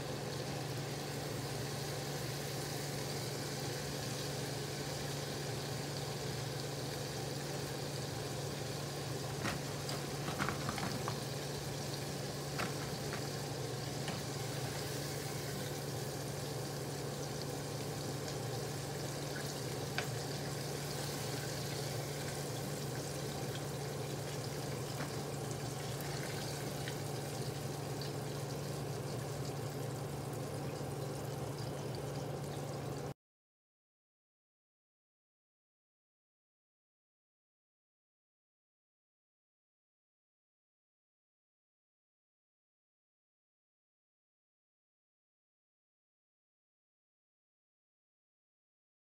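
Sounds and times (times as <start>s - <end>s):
deep-frying sizzle: 0.0s - 33.2s.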